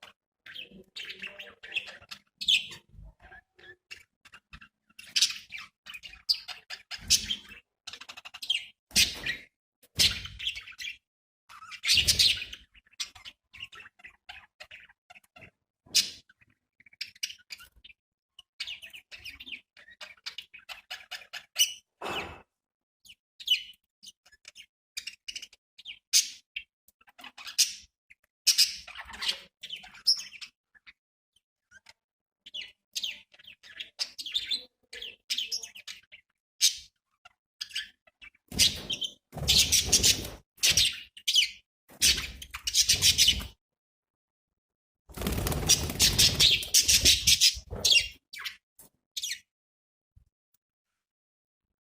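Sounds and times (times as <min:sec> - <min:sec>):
budgerigars chirping: 0:11.6 - 0:17.9, 0:37.6 - 0:43.6, 0:45.2 - 0:48.6.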